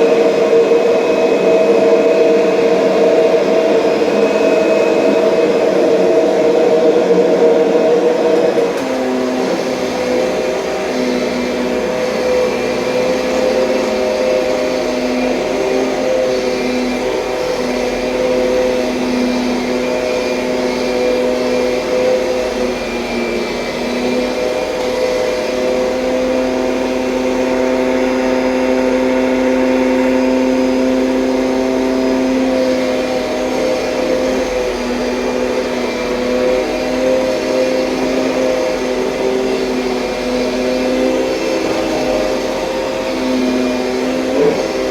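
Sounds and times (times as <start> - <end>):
vacuum cleaner running: 0.0 - 44.9.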